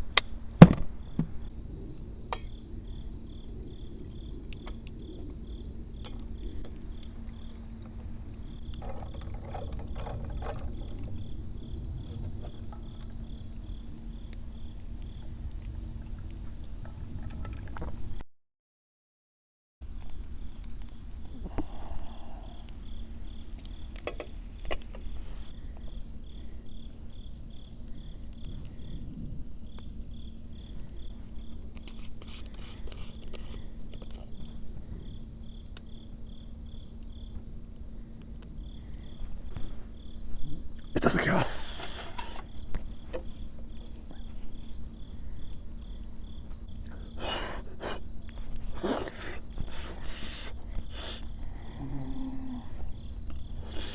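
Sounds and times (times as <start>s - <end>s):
insect steady high trill: 40.9s - 43.0s, 47.1s - 53.9s
insect pulsing chirps: 48.7s - 52.6s.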